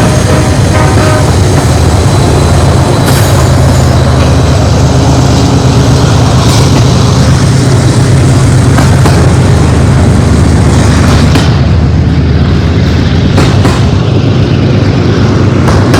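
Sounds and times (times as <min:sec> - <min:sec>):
freight train rumbling: 0:00.0 - 0:15.9.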